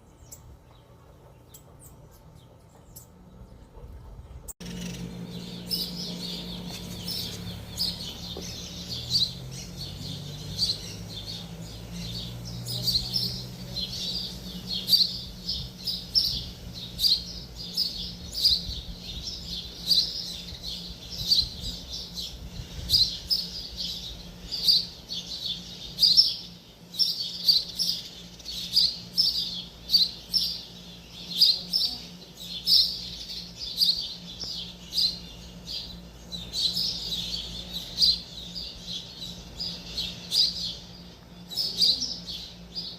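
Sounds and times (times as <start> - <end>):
low hum: 0.0 - 31.2
small bird chirping: 4.6 - 42.9.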